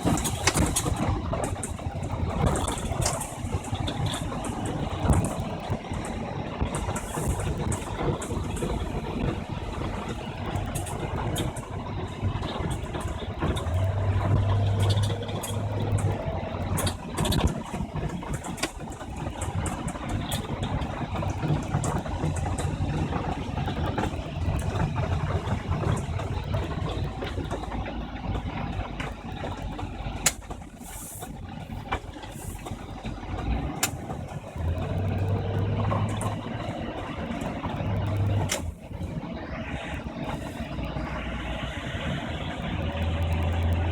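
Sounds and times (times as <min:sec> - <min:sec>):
truck engine running: 0:00.0 - 0:43.9.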